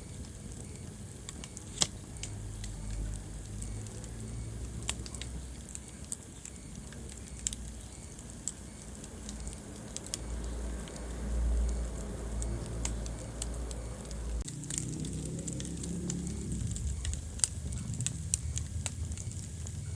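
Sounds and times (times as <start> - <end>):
low rumble of flames: 0.0 - 19.9
wood fire crackling and popping: 0.0 - 19.9.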